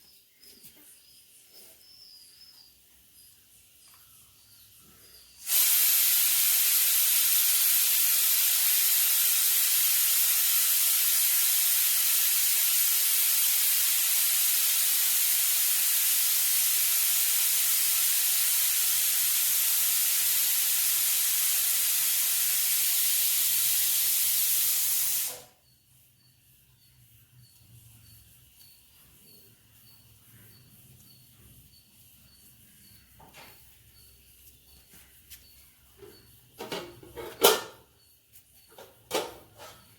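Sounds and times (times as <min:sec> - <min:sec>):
loud even hiss: 0:05.4 - 0:25.6.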